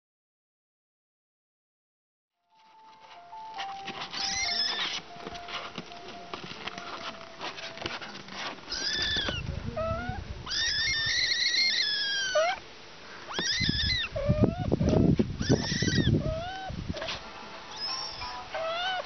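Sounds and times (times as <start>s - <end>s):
kittens mewing: 4.1s - 5.0s, 8.7s - 12.7s, 13.3s - 19.0s.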